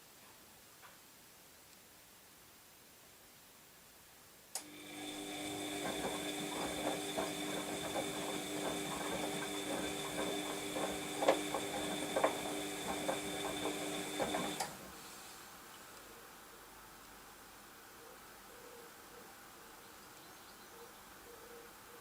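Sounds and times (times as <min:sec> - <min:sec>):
washing machine motor whine: 0:04.6 - 0:15.0.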